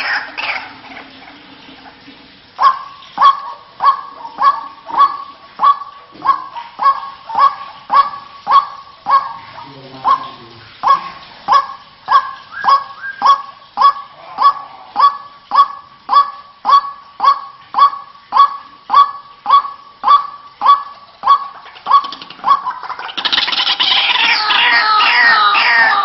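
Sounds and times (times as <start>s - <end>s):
waterhen harsh calling: 0.0s - 26.0s.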